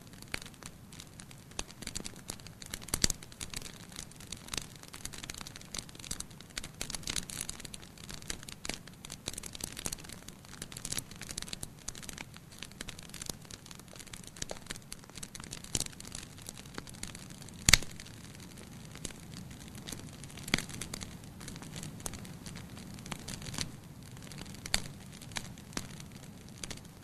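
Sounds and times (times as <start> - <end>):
wood fire crackling: 0.0 - 27.0
loud pop from fire: 17.6 - 18.0.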